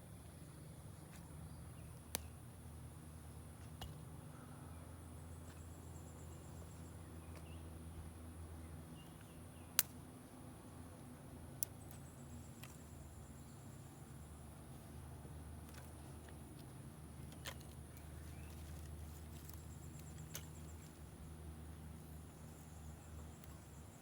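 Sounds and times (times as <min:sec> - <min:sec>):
sharp snaps: 0:02.0 - 0:02.4, 0:09.6 - 0:10.0.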